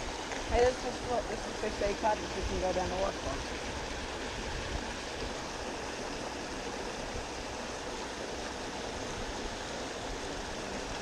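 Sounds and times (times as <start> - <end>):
stream rushing water: 0.0 - 11.0.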